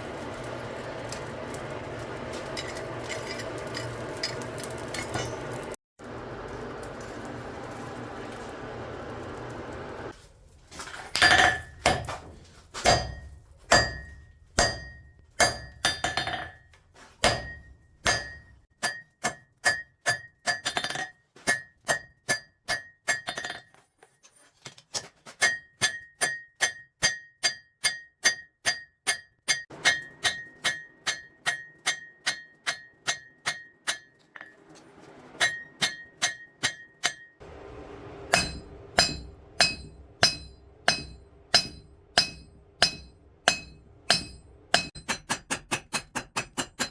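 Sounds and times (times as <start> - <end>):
low hum: 0.0 - 11.8, 37.4 - 44.9
hammer striking steel on anvil: 0.2 - 5.8, 11.1 - 23.7, 25.4 - 34.6, 35.4 - 46.9.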